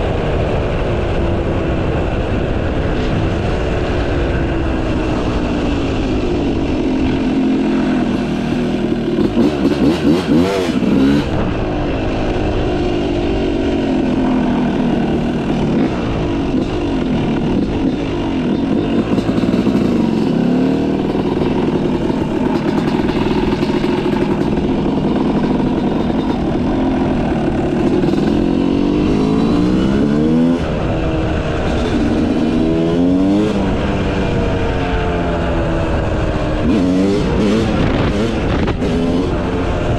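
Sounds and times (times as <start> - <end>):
motocross engine revving: 6.2 - 34.4, 36.4 - 39.9.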